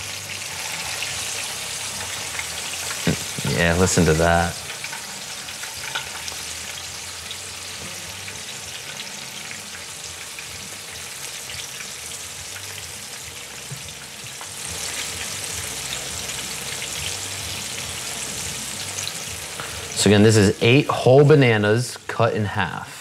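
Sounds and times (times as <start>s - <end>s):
bananas sizzling in oil: 0.0s - 21.8s.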